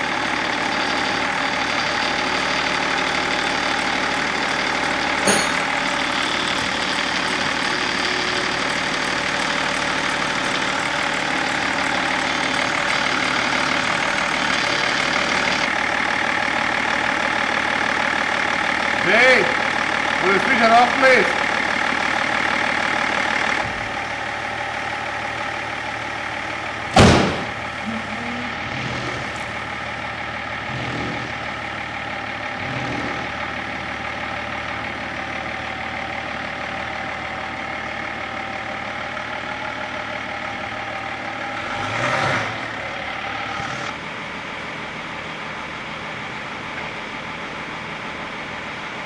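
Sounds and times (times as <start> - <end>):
diesel engine idling: 0.0 - 49.0
sharp loud bang: 26.9 - 27.6.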